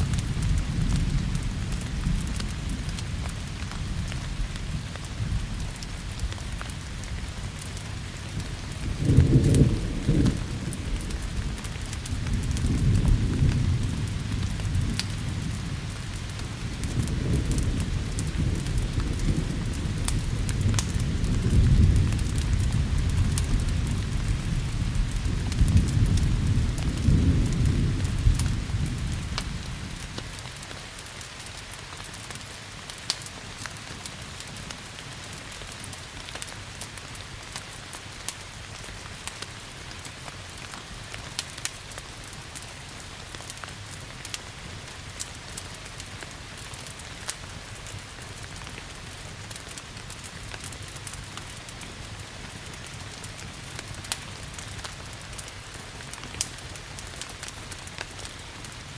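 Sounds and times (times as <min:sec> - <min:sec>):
thunder rumbling: 0:00.0 - 0:30.4
steady rain falling: 0:00.0 - 0:58.9
wood fire crackling: 0:00.0 - 0:58.9.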